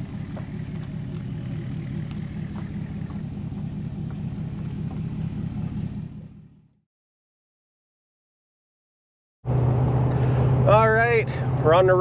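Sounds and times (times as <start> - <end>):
vehicle engine rumbling: 0.0 - 6.8, 9.5 - 12.0.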